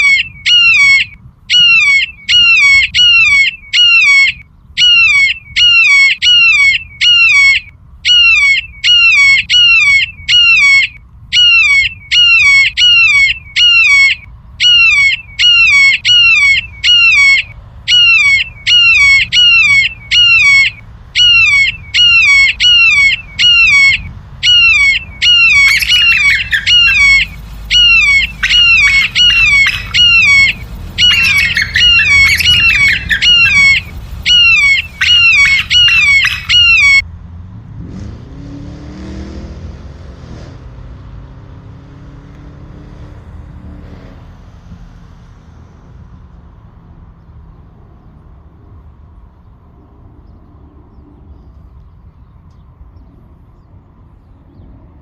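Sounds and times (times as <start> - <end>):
bird squawking harshly: 0.0 - 37.0.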